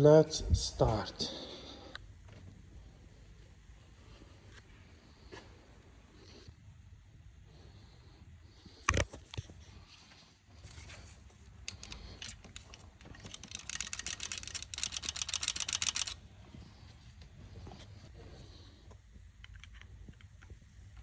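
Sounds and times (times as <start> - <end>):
hand tool clicking: 11.7 - 16.2.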